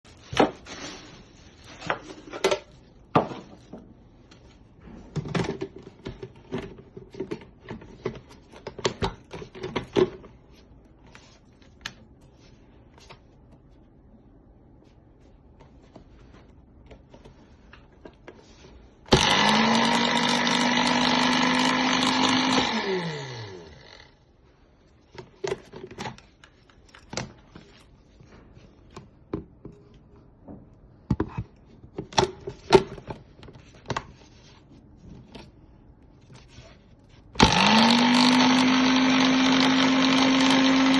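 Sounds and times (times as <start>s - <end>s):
blender motor running: 19.1s - 24.2s, 37.4s - 40.9s.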